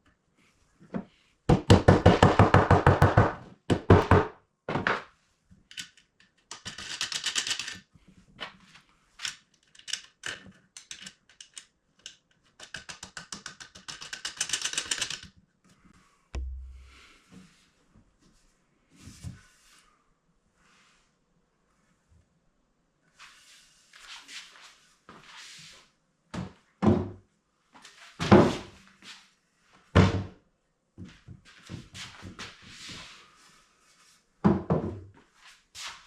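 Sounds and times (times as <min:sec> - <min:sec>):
low thud: 0:16.4 - 0:17.2.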